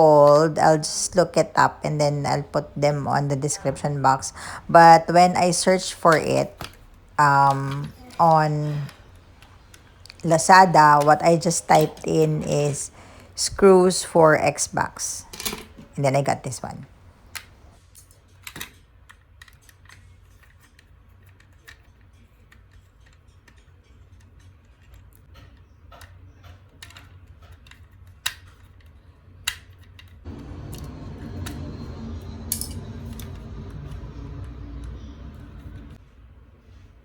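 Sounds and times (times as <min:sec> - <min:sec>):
steady low noise: 0:30.3 - 0:36.0.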